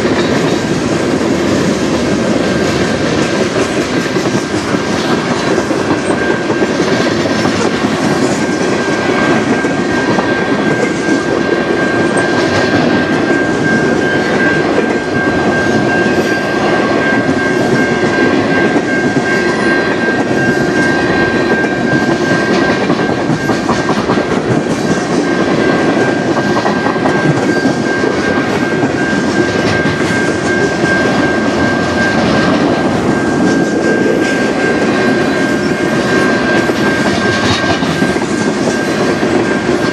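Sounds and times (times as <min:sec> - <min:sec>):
freight train wheels clattering: 0:00.0 - 0:39.9
high-pitched tone: 0:00.0 - 0:39.9.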